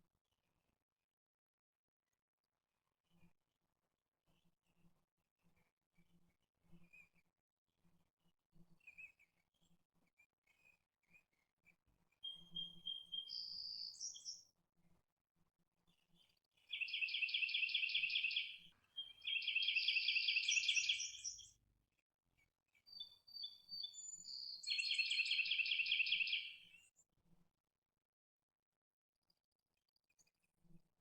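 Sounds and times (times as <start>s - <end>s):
whistled bird notes: 12.2s - 14.4s, 16.7s - 21.5s, 22.9s - 26.6s.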